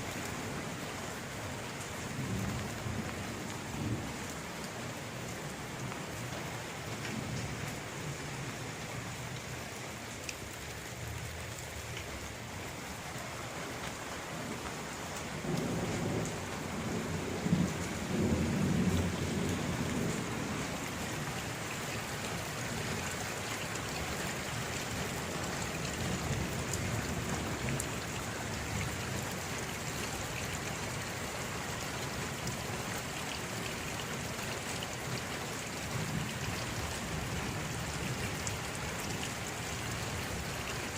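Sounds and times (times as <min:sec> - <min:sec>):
steady rain falling: 0:00.0 - 0:40.9
low rumble of thunder: 0:02.1 - 0:04.4, 0:15.3 - 0:21.2.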